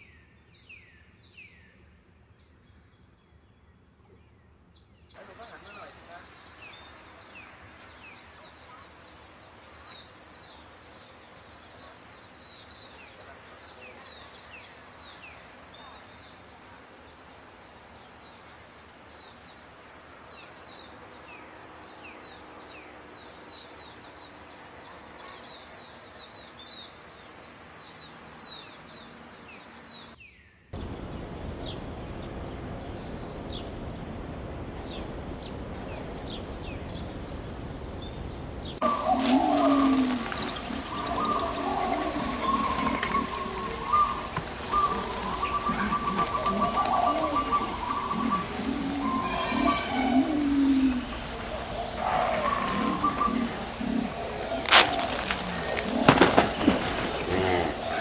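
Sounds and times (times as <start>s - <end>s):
faint background hiss: 2.0s - 58.0s
songbirds chirping: 4.8s - 58.0s
loud rushing noise: 30.8s - 39.1s
high-pitched whine: 30.8s - 56.2s.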